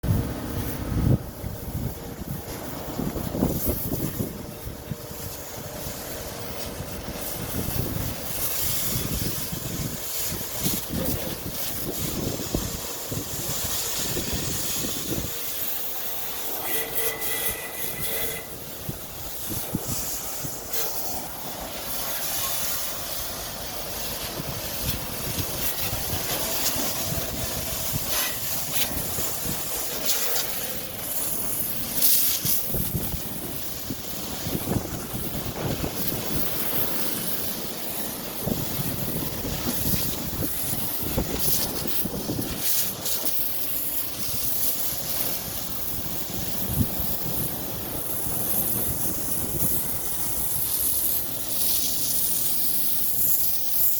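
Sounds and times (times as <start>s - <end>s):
water jet spraying on vehicle: 0.0s - 53.9s.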